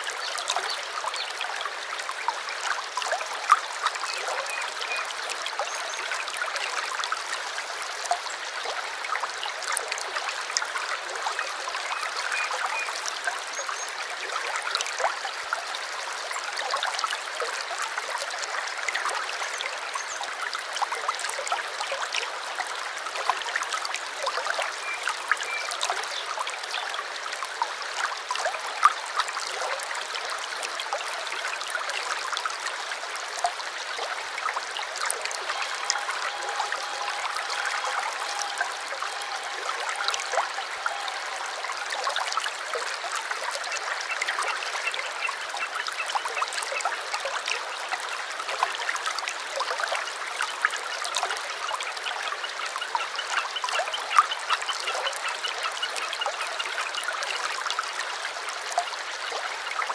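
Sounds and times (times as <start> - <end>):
brook babbling: 0.0 - 59.9.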